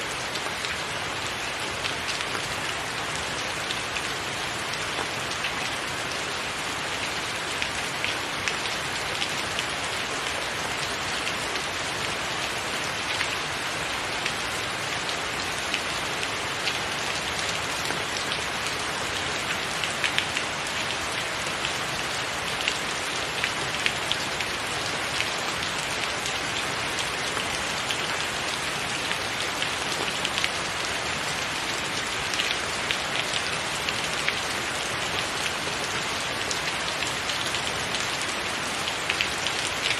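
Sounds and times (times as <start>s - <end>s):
rain on a roof: 0.0s - 39.9s.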